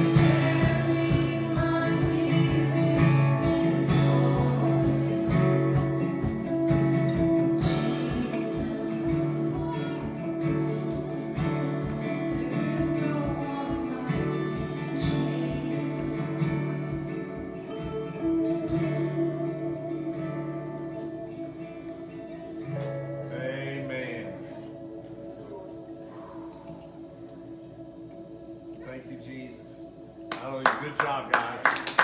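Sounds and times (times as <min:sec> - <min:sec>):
live gospel band playing: 0:00.0 - 0:32.0.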